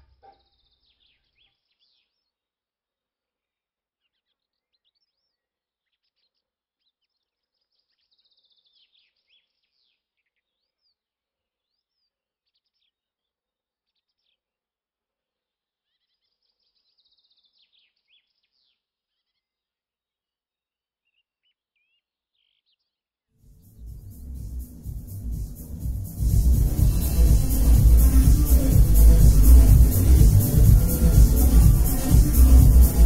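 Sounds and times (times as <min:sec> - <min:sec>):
faint songbirds chirping: 0:00.0 - 0:02.6, 0:03.4 - 0:14.5, 0:15.5 - 0:19.8.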